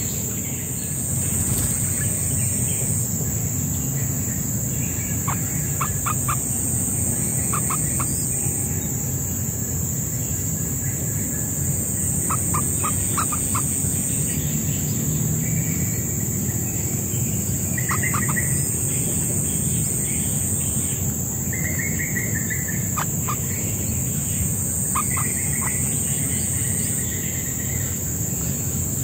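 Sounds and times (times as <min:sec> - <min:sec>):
high-pitched insect drone: 0:00.0 - 0:29.0
trilled bird chirps: 0:03.8 - 0:09.5, 0:11.9 - 0:14.9, 0:17.1 - 0:28.0.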